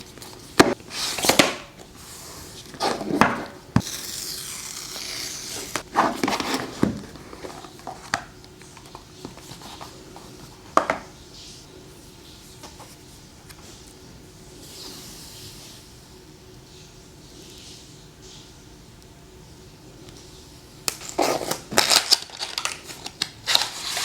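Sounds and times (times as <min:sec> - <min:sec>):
packaging rustling and sliding: 0:00.0 - 0:10.9, 0:21.0 - 0:24.0.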